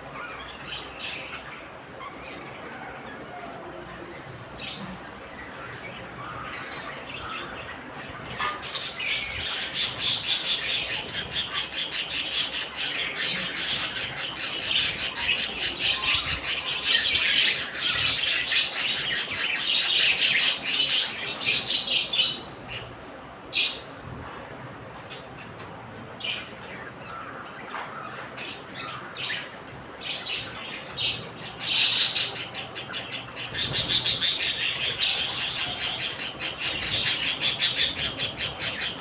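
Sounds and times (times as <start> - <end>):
parrots chirping shrilly: 8.4 - 21.6, 31.4 - 39.0.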